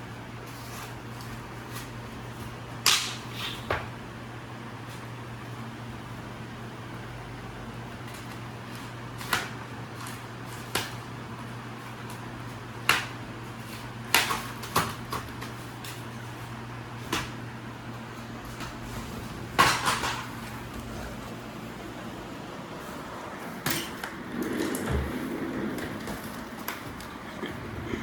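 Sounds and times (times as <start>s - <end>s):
steady low hum: 11.2s - 28.0s.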